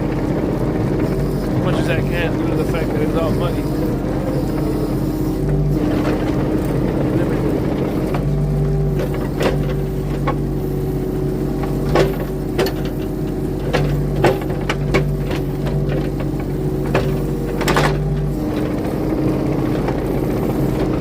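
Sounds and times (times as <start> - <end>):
diesel engine running under load: 0.0 - 21.0
metallic clanks and knocks: 11.8 - 18.2.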